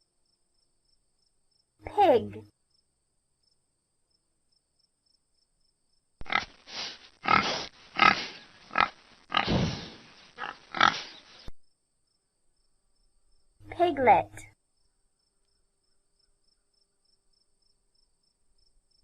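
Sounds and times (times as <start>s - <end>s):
pig grunting: 6.2s - 11.3s.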